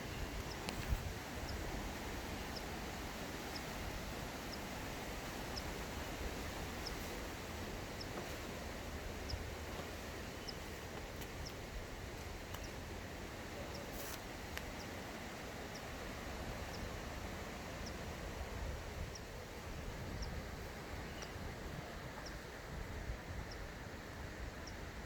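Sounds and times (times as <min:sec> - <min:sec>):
low background hiss: 0:00.0 - 0:25.0
faint clicks: 0:21.2 - 0:21.4.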